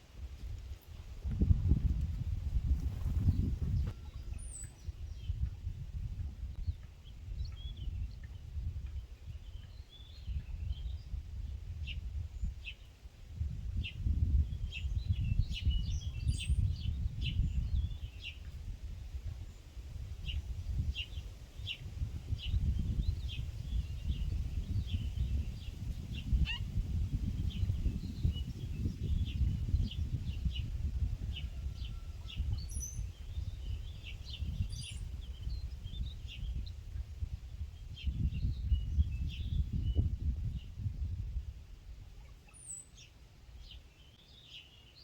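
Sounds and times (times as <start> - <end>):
small birds chirping: 1.4 - 11.2, 19.4 - 41.1, 42.1 - 45.0.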